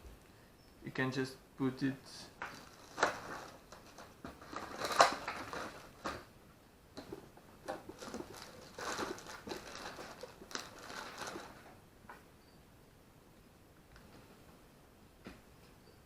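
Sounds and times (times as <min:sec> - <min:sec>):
plastic tubing clicks and crinkles: 0:02.4 - 0:06.3, 0:06.9 - 0:11.8.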